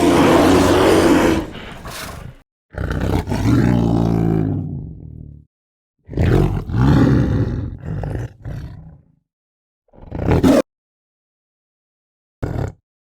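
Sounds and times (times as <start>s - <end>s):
large animal roaring: 0.0s - 5.4s, 6.1s - 9.1s.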